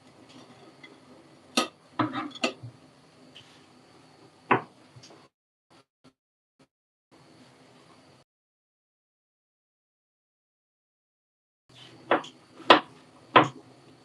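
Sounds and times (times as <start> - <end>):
dishes and cutlery clinking: 1.6 - 2.6.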